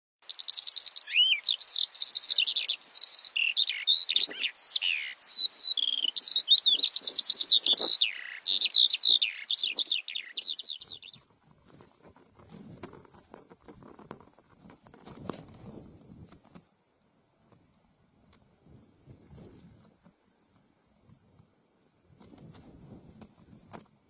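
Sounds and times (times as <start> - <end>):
bird singing trills and whistles: 0.2 - 11.2
faint rustling: 11.2 - 16.8, 17.4 - 24.0.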